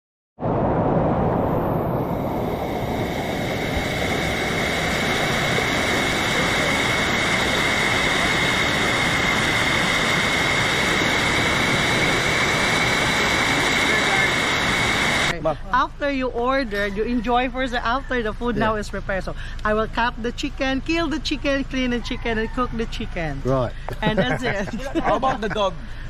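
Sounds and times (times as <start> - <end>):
waterfall rushing: 2.4 - 15.3.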